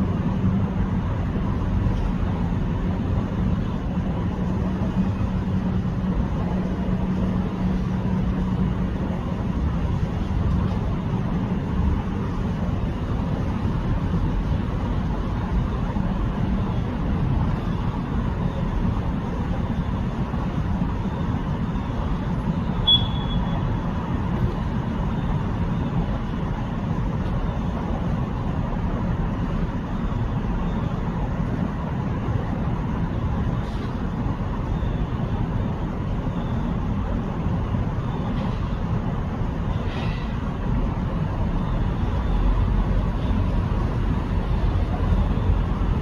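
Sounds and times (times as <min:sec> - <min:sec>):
low rumbling background noise: 0:00.0 - 0:46.0
high chirp: 0:22.8 - 0:23.6.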